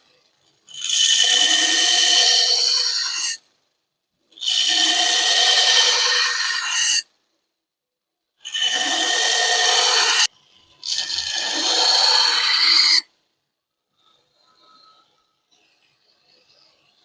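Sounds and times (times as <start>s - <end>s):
power grinder grinding steel: 8.5s - 13.0s.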